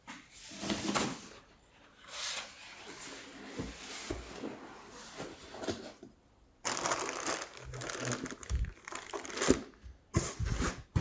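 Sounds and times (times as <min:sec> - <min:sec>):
rustling of packaging: 0:06.6 - 0:10.9.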